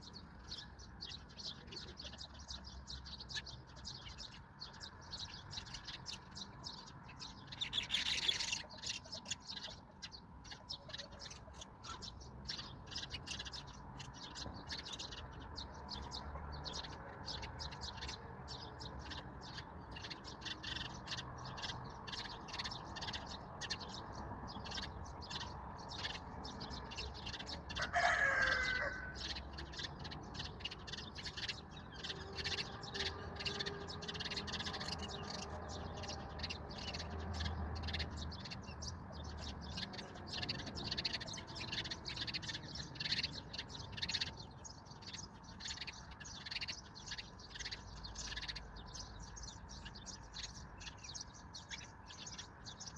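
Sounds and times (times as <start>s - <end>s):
small birds chirping: 0.0s - 52.9s
chicken call: 27.8s - 29.2s.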